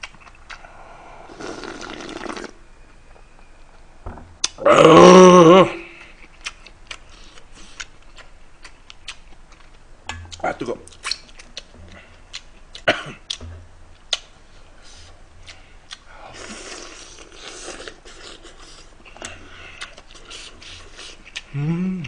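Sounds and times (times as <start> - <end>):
person chewing food: 0.0 - 0.7, 6.0 - 21.8.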